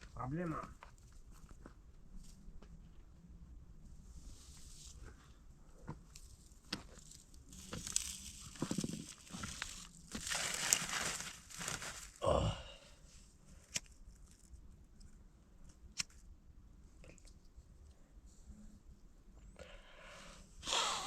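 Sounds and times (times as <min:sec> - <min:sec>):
material crumpling and rustling: 0:06.9 - 0:12.2.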